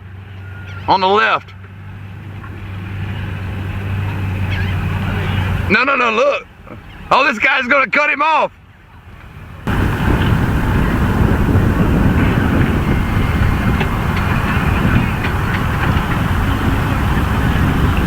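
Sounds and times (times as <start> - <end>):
low rushing outdoor noise: 0.0 - 18.0.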